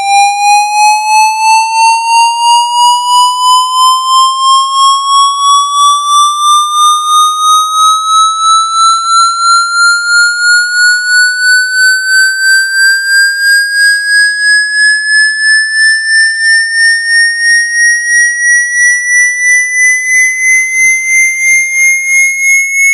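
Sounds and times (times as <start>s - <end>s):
pulsing electronic tone: 3.5s - 17.0s.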